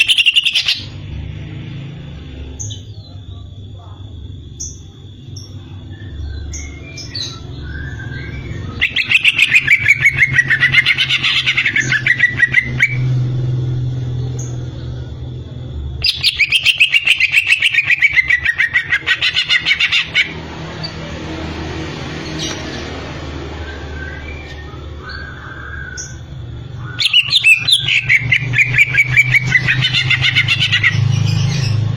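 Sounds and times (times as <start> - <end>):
bird singing chattering notes: 0.0 - 1.0, 4.6 - 13.2, 15.9 - 21.1, 23.8 - 31.9.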